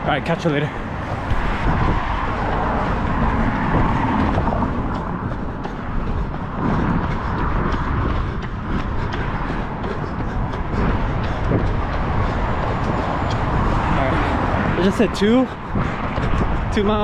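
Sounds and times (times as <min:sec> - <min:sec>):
low rumble of road noise: 0:00.0 - 0:17.0.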